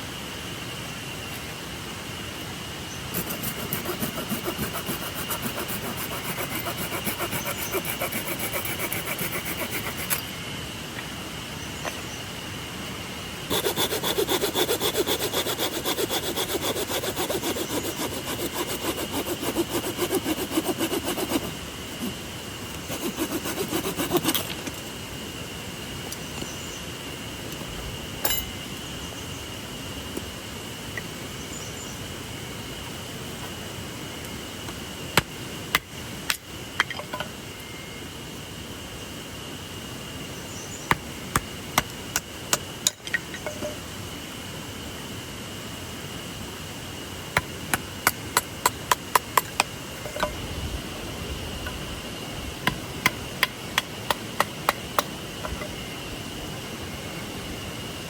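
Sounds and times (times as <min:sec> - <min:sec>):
hand saw cutting wood: 0:03.1 - 0:10.2, 0:13.5 - 0:21.6, 0:22.9 - 0:24.5.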